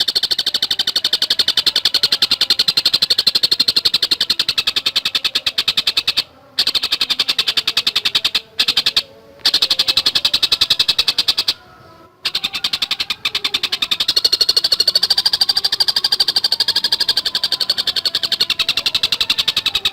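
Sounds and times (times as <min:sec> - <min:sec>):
bird calling in fast high notes: 0:00.0 - 0:19.9.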